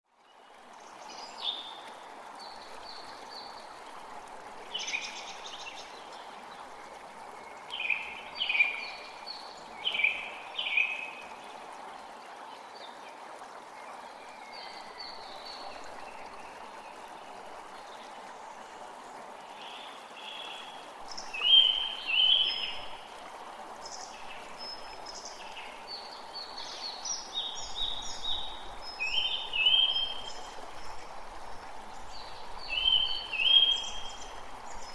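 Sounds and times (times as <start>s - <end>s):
creek rushing: 0.1s - 34.9s
songbirds singing: 7.4s - 11.4s, 19.5s - 23.2s, 23.8s - 34.9s.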